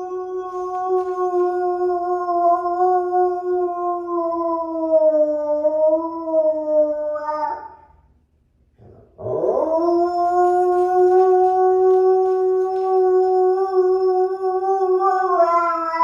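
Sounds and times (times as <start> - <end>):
dog howling: 9.2 - 16.0.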